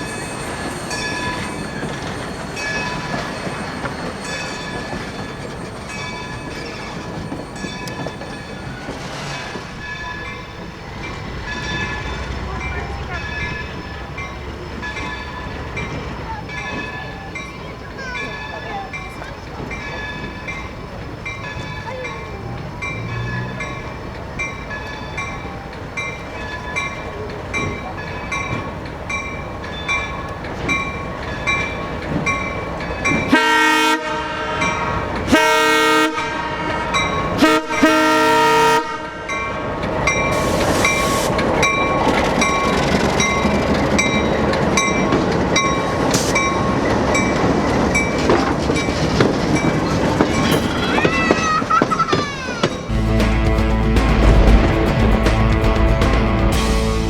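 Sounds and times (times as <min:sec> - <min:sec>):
train wheel clatter: 0:00.0 - 0:35.5, 0:39.3 - 0:53.0
locomotive bell ringing: 0:00.0 - 0:55.9
train horn blasts: 0:33.3 - 0:39.5.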